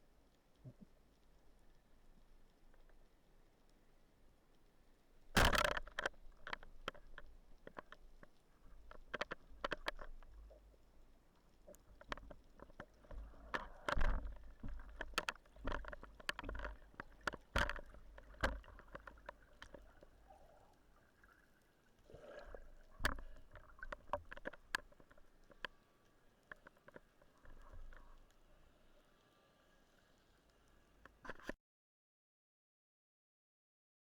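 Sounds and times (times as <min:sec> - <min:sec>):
underwater clicks and crackles: 0:00.0 - 0:31.6
muffled water thumps: 0:11.7 - 0:20.5.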